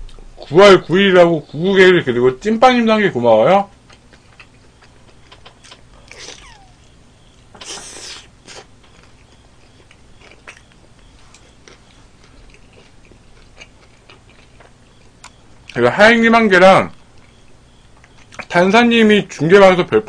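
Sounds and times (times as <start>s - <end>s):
wet chewing and mouth clicks: 3.7s - 15.8s, 16.9s - 18.5s.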